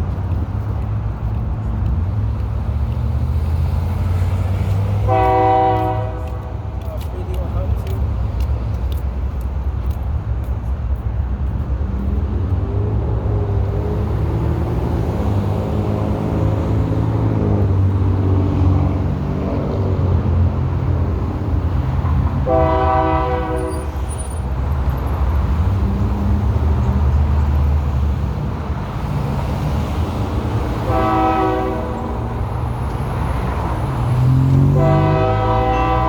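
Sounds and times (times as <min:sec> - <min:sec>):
diesel locomotive engine drone: 0:00.0 - 0:36.0
locomotive horn blast: 0:05.0 - 0:07.0, 0:22.3 - 0:24.0, 0:30.8 - 0:32.5, 0:34.3 - 0:36.0.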